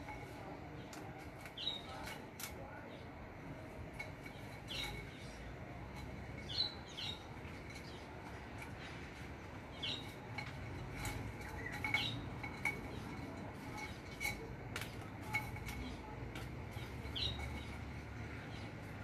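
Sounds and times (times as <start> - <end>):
small bird chirping: 4.0 - 13.1, 15.3 - 19.0.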